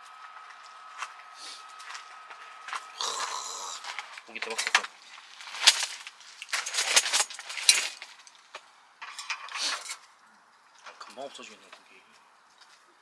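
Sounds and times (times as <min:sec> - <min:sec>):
metal clinking and rattling: 0:04.4 - 0:10.0.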